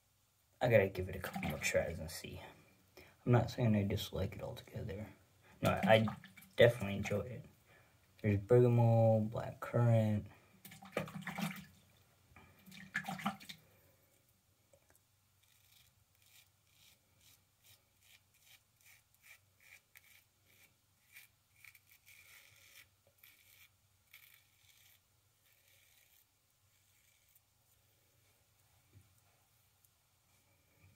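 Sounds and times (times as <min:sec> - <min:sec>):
razor scraping stubble: 0:15.4 - 0:27.4.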